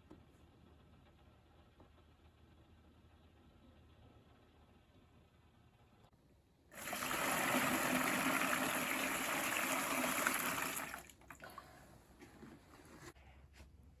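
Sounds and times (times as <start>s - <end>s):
running water: 6.8s - 11.8s.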